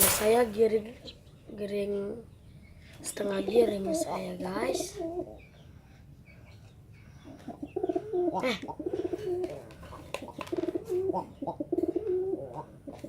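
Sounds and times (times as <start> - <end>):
pigeon cooing: 3.4 - 5.5, 7.2 - 13.0.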